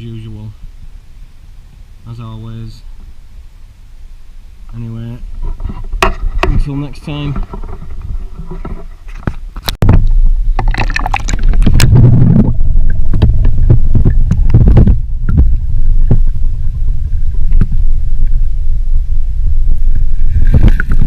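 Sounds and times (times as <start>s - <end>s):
wind buffeting microphone: 4.8s - 21.0s
water splashes and knocks: 5.6s - 11.9s, 13.0s - 16.3s.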